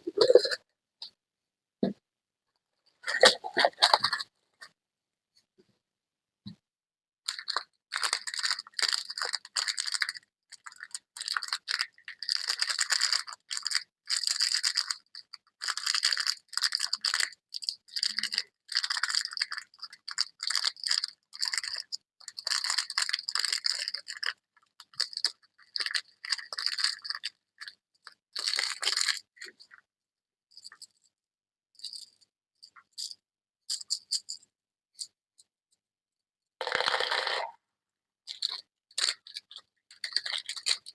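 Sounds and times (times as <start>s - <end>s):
packaging crinkling and rattling: 7.3s - 27.7s, 28.4s - 29.5s, 36.6s - 37.5s, 38.3s - 40.9s.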